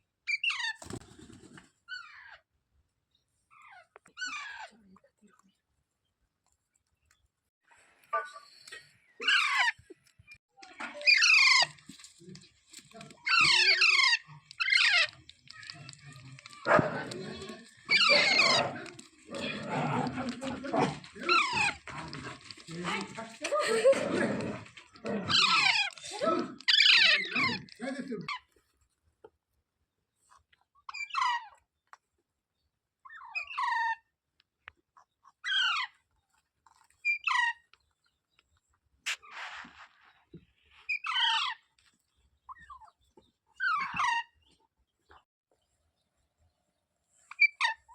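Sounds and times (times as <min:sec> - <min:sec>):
parrot screeching: 0:11.0 - 0:11.8, 0:13.1 - 0:19.6, 0:21.0 - 0:22.6, 0:25.2 - 0:27.8
rustling burst: 0:39.1 - 0:40.3.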